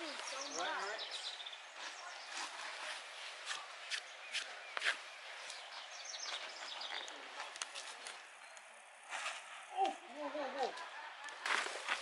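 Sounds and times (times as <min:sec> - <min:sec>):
footsteps on dirt trail: 0:00.0 - 0:08.0.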